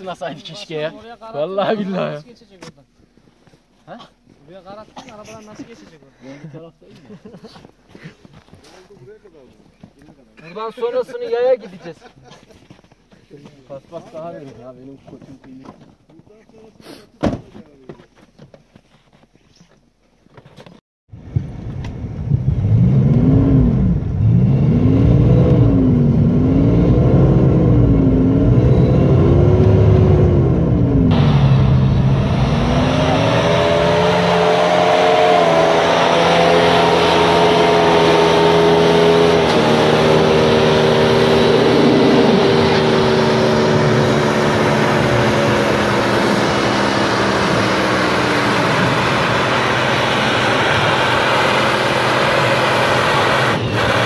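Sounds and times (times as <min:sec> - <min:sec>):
off-road engine revving: 0:22.2 - 0:54.0.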